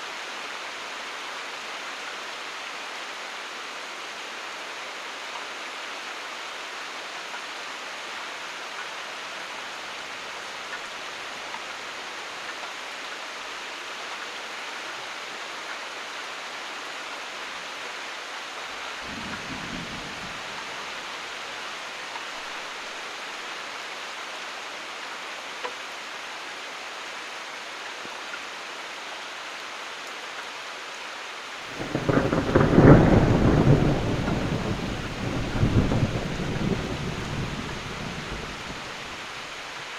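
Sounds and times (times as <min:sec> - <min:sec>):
rain falling: 0:00.0 - 0:39.9
thunder rolling: 0:19.1 - 0:20.4, 0:31.7 - 0:39.3.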